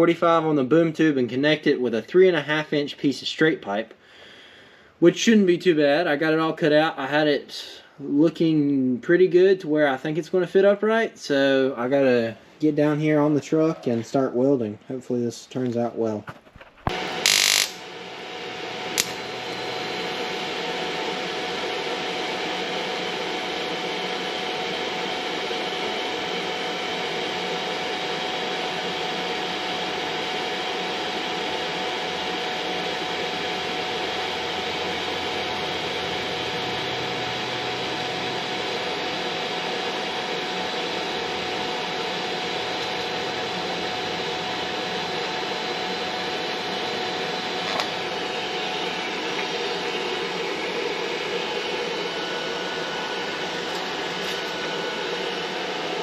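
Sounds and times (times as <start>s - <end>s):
welder hissing and humming: 16.8s - 27.2s, 31.4s - 56.0s
faint high whine: 16.9s - 20.6s
welder switch click: 19.0s - 19.6s.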